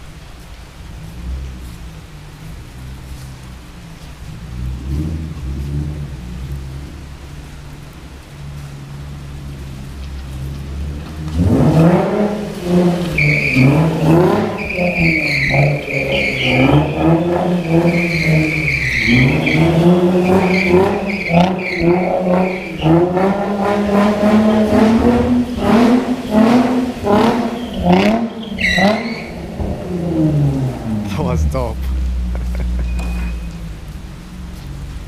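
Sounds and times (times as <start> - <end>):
car engine revving: 0.0 - 35.0
tyres squealing: 11.0 - 31.8, 32.6 - 34.3.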